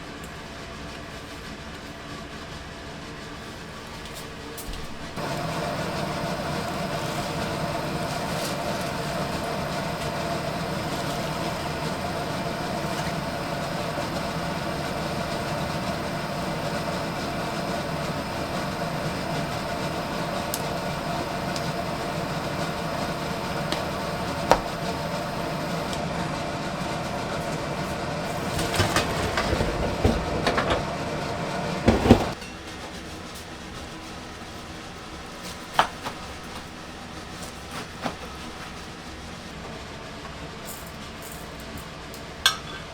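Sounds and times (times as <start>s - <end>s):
machine humming: 5.0s - 32.4s.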